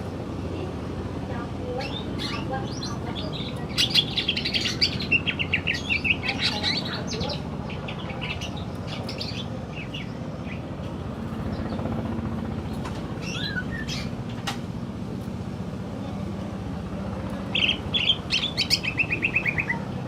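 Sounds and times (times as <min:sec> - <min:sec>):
bird singing chirps and whistles: 0:03.8 - 0:08.4, 0:13.2 - 0:14.1, 0:17.5 - 0:19.8.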